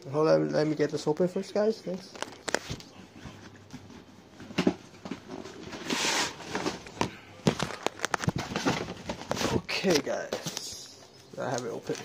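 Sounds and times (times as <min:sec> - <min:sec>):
cardboard hissing scrape or tear: 0:05.7 - 0:06.7.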